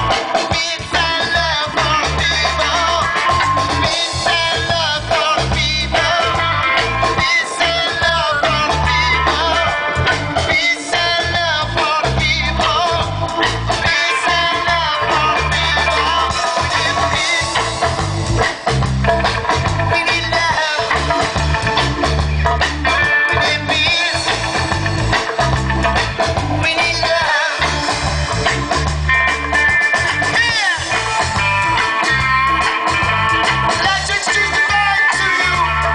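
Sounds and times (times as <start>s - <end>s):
guitar: 0.0s - 35.9s
reggae band playing: 0.0s - 35.9s
rhythmic bass line: 0.0s - 35.9s.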